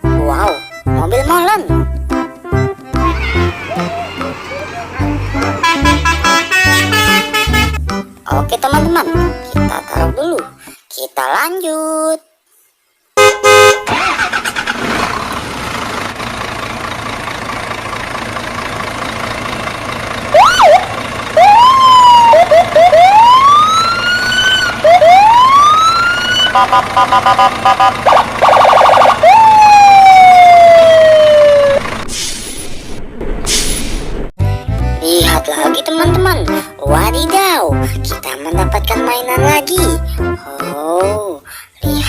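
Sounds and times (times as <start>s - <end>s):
engine running: 13.8s - 32.2s
electronic siren tones: 20.4s - 31.9s.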